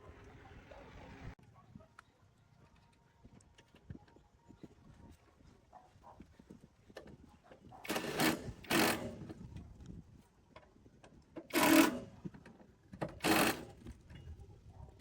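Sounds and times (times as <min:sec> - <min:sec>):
rasping tool bursts: 0:07.9 - 0:09.3, 0:11.5 - 0:12.2, 0:13.2 - 0:13.8.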